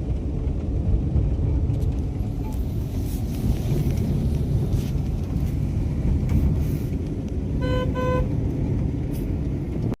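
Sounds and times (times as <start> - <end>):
car engine and road rumble: 0.0 - 10.0
car horn beeps: 7.6 - 8.4.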